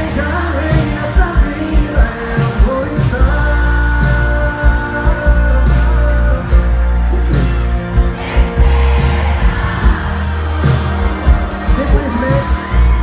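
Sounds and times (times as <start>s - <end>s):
person singing: 0.0s - 7.1s
heavy bass beat: 0.0s - 13.0s
live concert music: 0.0s - 13.0s.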